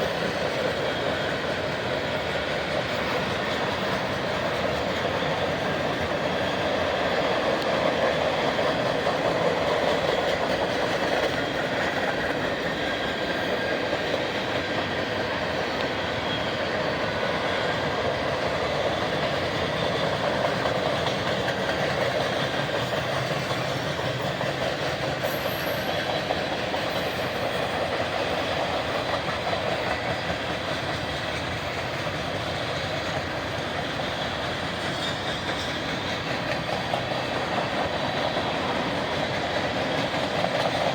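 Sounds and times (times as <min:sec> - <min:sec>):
train wheels rolling on track: 0:00.0 - 0:40.9.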